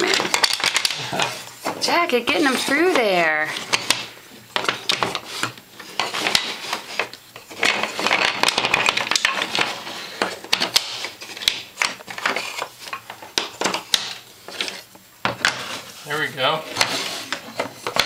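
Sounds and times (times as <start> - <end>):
toy trains clicking and clattering: 0.0 - 15.6.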